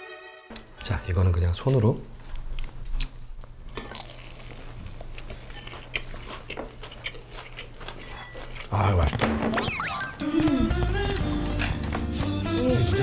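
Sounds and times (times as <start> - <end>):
person chewing fried food: 2.2 - 9.0.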